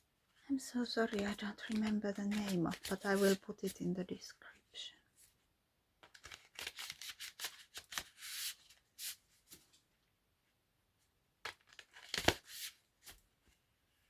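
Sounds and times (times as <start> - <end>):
cards being shuffled: 1.0 - 3.5, 6.0 - 9.2, 11.5 - 13.2.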